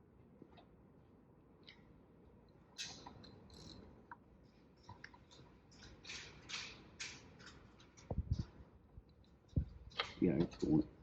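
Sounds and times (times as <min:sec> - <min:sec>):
metallic clicks and scrapes of tools: 0:02.8 - 0:08.5.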